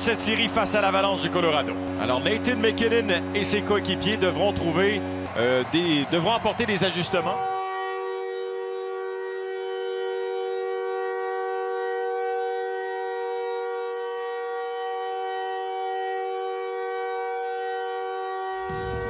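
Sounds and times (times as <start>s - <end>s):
sustained chord drone: 0.0s - 19.0s.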